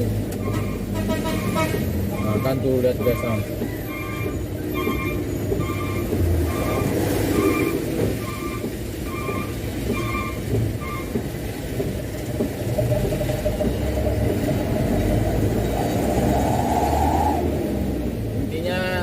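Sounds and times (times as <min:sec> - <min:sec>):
road rumble: 0:00.0 - 0:19.0
truck diesel engine: 0:00.0 - 0:19.0
short electronic beeps: 0:01.4 - 0:11.0.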